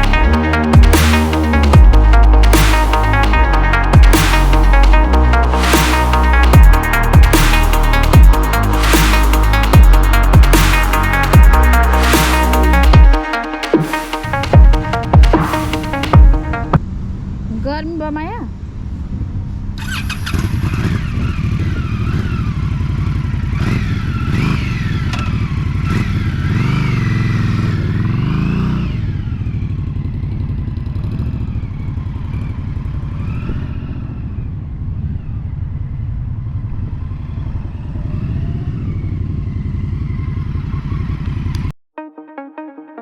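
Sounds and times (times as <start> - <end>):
motorcycle engine running: 20.1 - 33.2.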